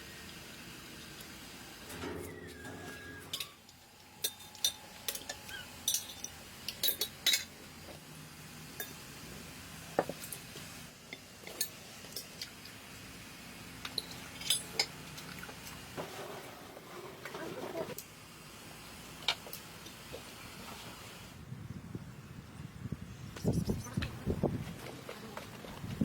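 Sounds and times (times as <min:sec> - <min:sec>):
utensils and dishes clinking: 0:01.9 - 0:07.7, 0:11.1 - 0:12.7, 0:13.8 - 0:15.6.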